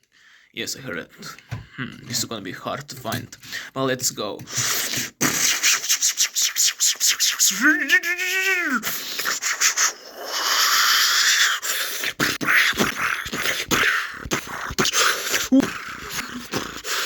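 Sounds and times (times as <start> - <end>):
toy cars clicking and rubbing: 2.8 - 7.5
child's mouth hissing whoosh: 8.8 - 12.5.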